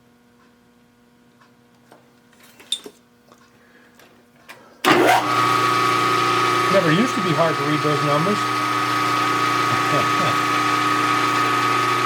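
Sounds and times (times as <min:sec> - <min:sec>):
low electrical hum: 0:00.0 - 0:04.9.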